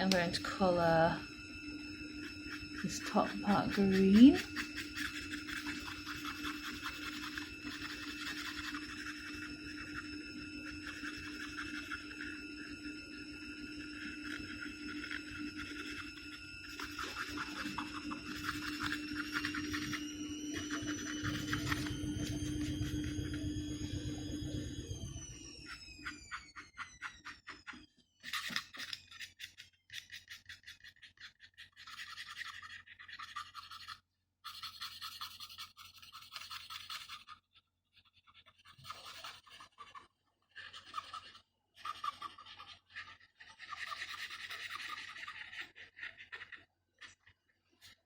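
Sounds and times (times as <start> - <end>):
paintbrush scrubbing on wood: 2.5 - 9.9, 14.0 - 21.9.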